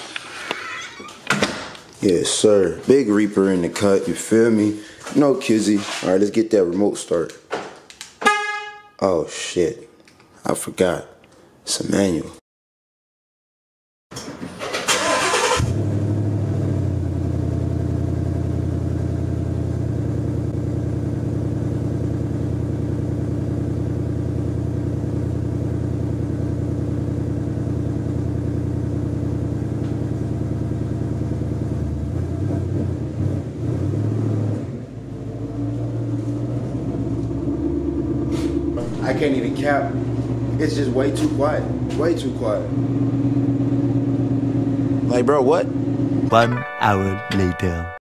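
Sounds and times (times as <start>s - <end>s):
car engine idling: 36.2s - 46.3s.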